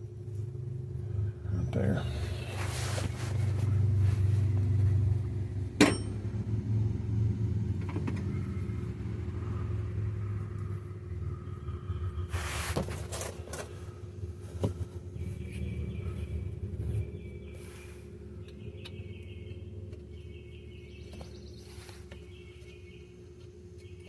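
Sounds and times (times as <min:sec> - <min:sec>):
hammer striking metal punch: 0:05.8 - 0:06.2
metal handling noises: 0:05.8 - 0:06.2
low rumble: 0:13.9 - 0:18.8.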